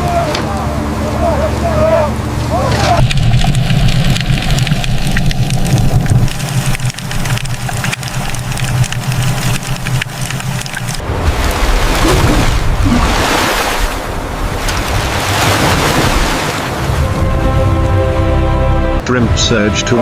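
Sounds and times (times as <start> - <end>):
boat engine rumbling: 0.0 - 20.0
small clicks and rattles: 3.0 - 11.0.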